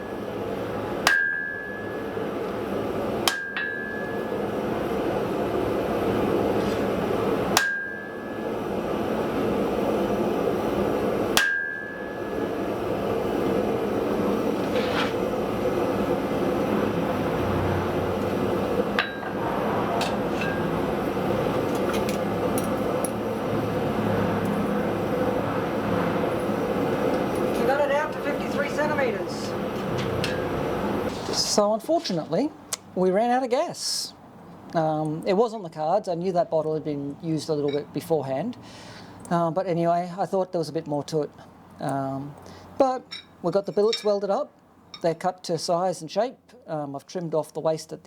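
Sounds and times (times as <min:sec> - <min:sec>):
gas forge roaring: 0:00.0 - 0:31.7
hammer striking hot steel on anvil: 0:01.0 - 0:02.6, 0:03.2 - 0:04.7, 0:07.5 - 0:08.7, 0:11.3 - 0:12.7, 0:18.9 - 0:21.0, 0:30.1 - 0:30.6, 0:43.1 - 0:44.2.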